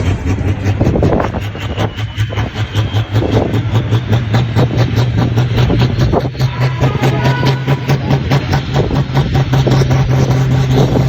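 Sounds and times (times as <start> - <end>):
tractor engine running under load: 0.0 - 11.0.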